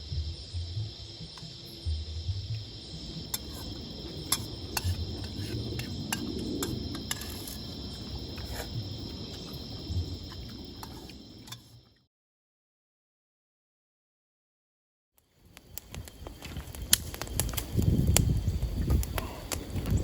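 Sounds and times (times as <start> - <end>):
low rumble: 0.0 - 11.5
insects chirring: 0.0 - 12.0, 15.2 - 20.0.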